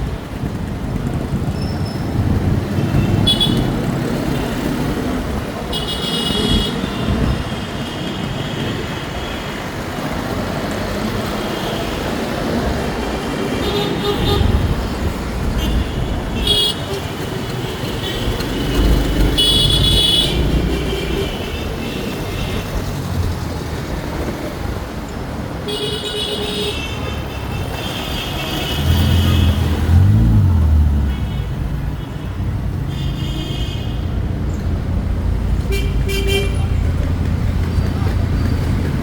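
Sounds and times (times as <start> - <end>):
rumble of traffic and wind: 0.0 - 39.0
vehicle horns tooting: 5.7 - 9.5, 15.6 - 22.7, 25.7 - 30.2, 31.0 - 34.1, 35.6 - 36.8.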